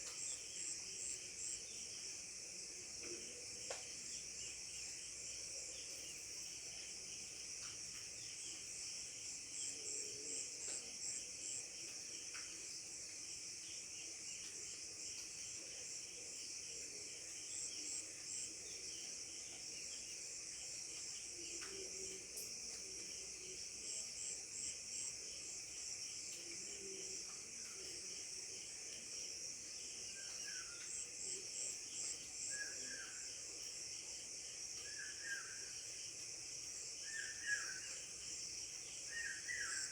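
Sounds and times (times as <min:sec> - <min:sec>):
crickets and insects chorus: 0:00.0 - 0:39.9.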